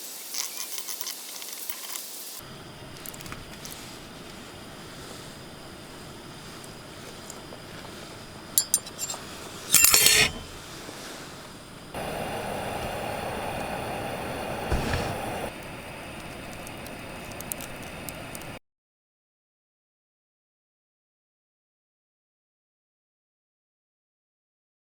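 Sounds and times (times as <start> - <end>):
steady hiss: 0.0 - 18.6
metal utensils clinking on cookware: 8.6 - 11.3.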